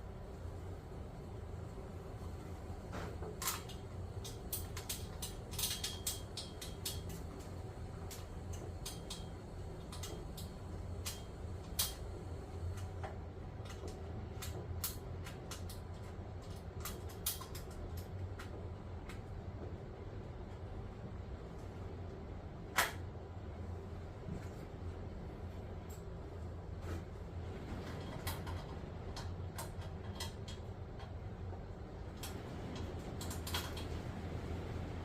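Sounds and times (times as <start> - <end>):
low background rumble: 0.0 - 35.0
hand tools clicking and tapping: 3.3 - 12.1, 12.7 - 19.2.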